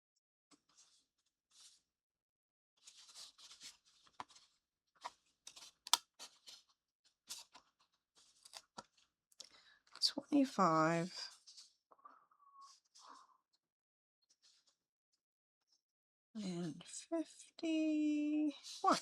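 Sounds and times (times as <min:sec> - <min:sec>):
soft rustling of parts sheet: 0:00.5 - 0:01.9, 0:02.8 - 0:09.2, 0:11.2 - 0:11.9, 0:14.3 - 0:14.8.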